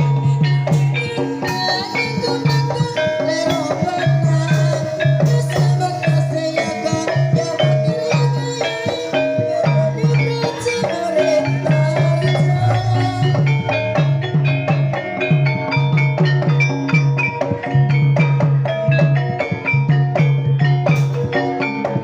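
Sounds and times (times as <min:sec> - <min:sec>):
metal mallet percussion notes: 0:00.0 - 0:22.0
repeating drum pattern: 0:00.0 - 0:22.0.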